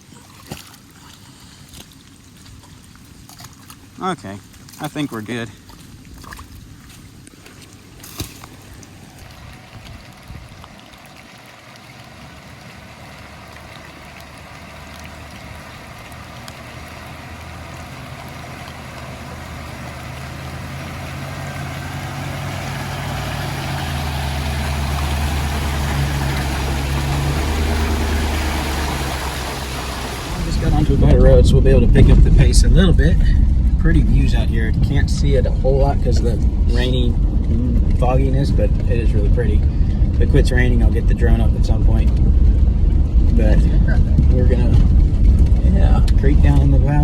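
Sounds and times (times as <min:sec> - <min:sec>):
car engine running: 0:12.0 - 0:47.0.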